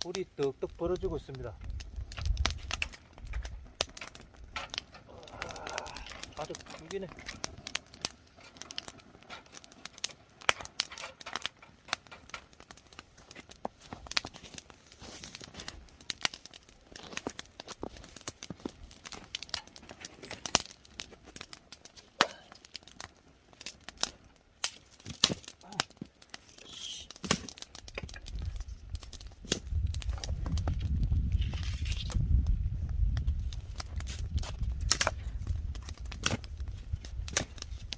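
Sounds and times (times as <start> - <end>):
wood fire crackling and popping: 0.0 - 37.9
wind rumble on microphone: 0.7 - 4.6, 27.9 - 37.9.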